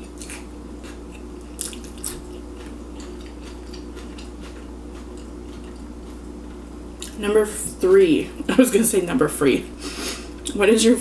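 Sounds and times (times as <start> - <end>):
chewing with mouth smacks: 0.0 - 6.3.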